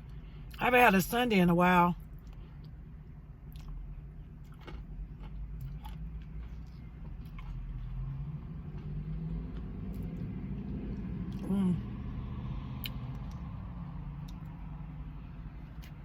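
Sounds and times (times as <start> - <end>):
low rumble inside a car: 0.0 - 16.0
chewing and mouth clicks: 2.1 - 2.8, 3.5 - 7.9, 8.6 - 11.4, 12.8 - 13.5, 14.2 - 14.6, 15.6 - 16.0.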